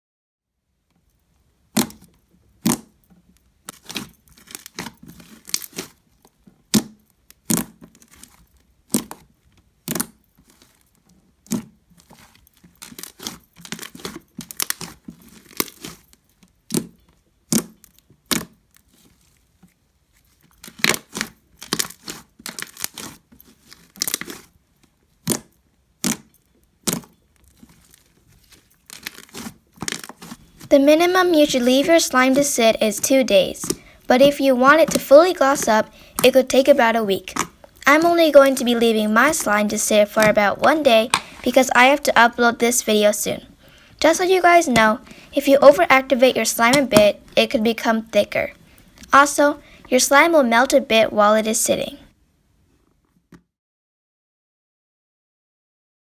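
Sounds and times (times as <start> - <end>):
slime clicks and crackling pops: 3.7 - 6.0, 6.7 - 8.2, 9.8 - 10.2, 16.7 - 18.6, 25.2 - 27.1
slime squeezed by hand: 28.9 - 50.7.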